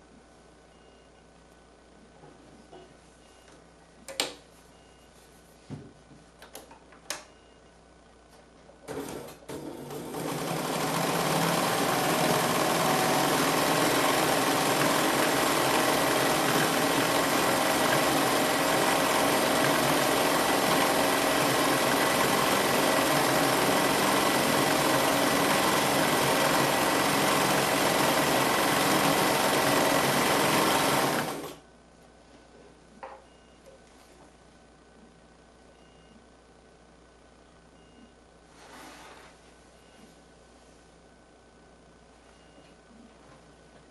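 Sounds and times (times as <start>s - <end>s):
sewing machine running: 8.9s - 31.6s.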